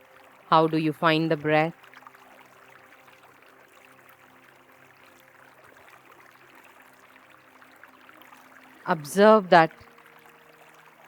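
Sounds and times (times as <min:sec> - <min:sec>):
river water flowing: 0:00.0 - 0:11.0
soft background music: 0:00.0 - 0:11.0.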